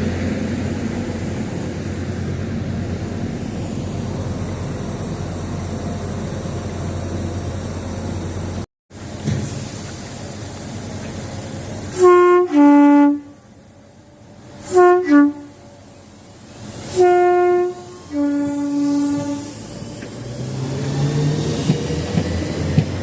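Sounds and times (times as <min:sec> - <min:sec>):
train running rumble: 0:00.0 - 0:23.0
two-tone train horn: 0:11.9 - 0:13.5, 0:14.6 - 0:15.8, 0:16.9 - 0:19.7.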